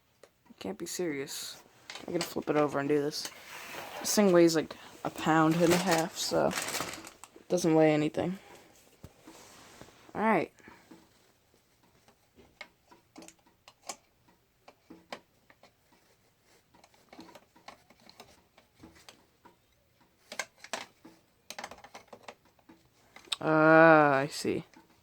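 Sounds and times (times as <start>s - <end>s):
faint clicks and taps: 10.6s - 23.4s.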